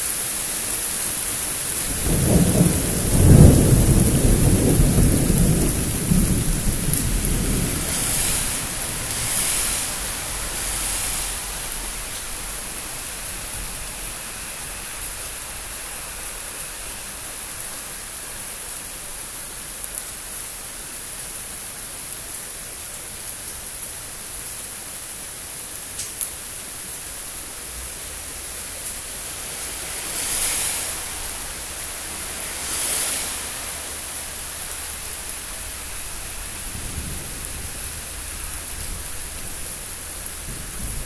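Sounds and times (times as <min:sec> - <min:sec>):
heavy rain hissing: 0:00.0 - 0:41.0
thunder rumbling: 0:01.7 - 0:13.8, 0:29.2 - 0:41.0.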